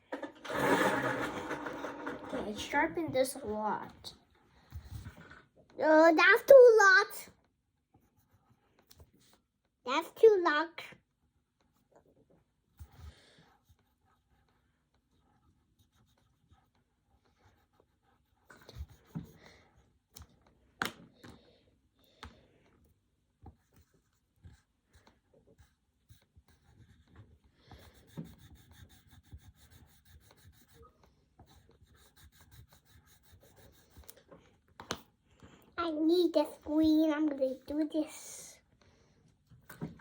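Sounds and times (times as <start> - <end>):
coloured pencil scratching on paper: 8.0 - 9.4, 12.8 - 20.0, 23.5 - 34.2.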